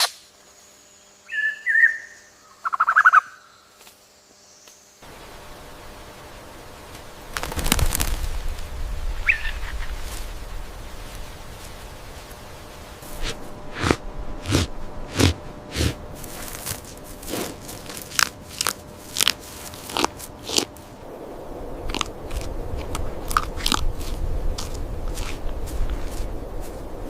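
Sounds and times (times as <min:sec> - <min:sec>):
faint steady hum: 0:00.1 - 0:27.0
animal chewing something crisp: 0:13.1 - 0:20.9, 0:21.9 - 0:26.3.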